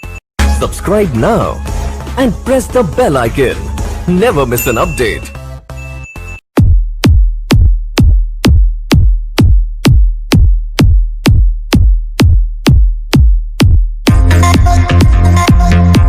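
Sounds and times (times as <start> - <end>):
bass-heavy kick drum: 6.6 - 16.0
electronic dance music: 7.5 - 16.0.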